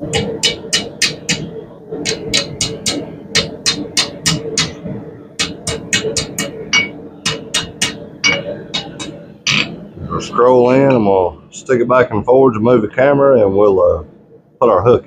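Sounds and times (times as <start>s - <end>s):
steady hum: 0.0s - 15.0s
hammer striking steel on anvil: 0.1s - 4.8s, 5.4s - 9.7s.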